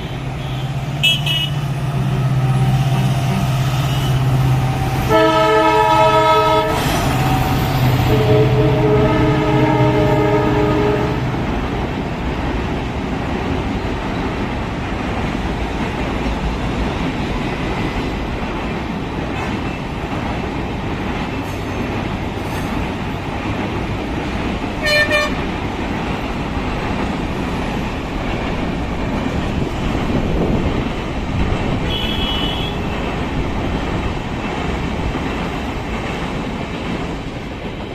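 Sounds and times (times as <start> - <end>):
train horn: 0.0 - 7.4, 8.0 - 11.4, 24.8 - 25.5, 31.8 - 32.9
train rumbling: 0.0 - 37.9.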